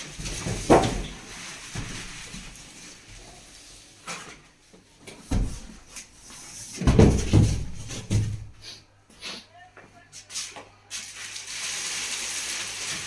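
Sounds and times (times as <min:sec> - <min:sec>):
handling knocks and thumps: 0:00.1 - 0:02.4, 0:05.0 - 0:08.6.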